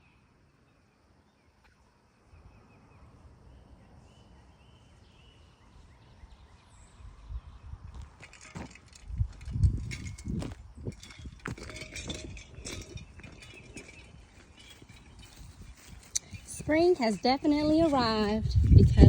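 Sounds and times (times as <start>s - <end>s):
wind rumble on microphone: 5.8s - 19.0s.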